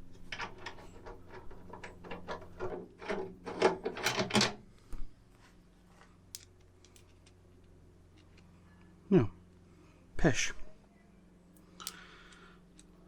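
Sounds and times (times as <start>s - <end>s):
metallic clicks and scrapes: 0.0s - 4.6s.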